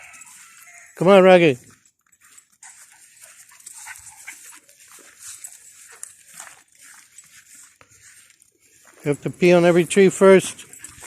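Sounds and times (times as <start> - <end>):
dog panting: 2.3 - 7.8, 10.6 - 11.0.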